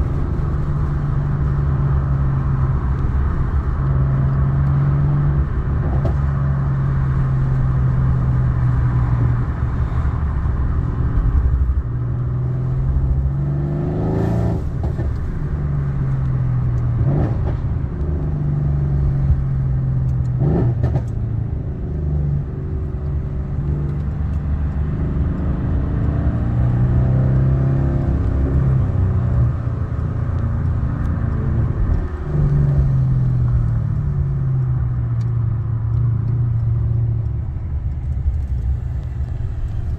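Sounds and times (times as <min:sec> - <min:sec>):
car engine droning: 0:00.0 - 0:39.9
engine revving: 0:12.4 - 0:16.2, 0:20.2 - 0:34.1.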